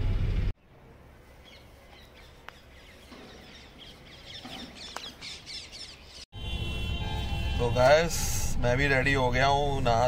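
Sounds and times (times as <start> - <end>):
small birds chirping: 0.6 - 6.3.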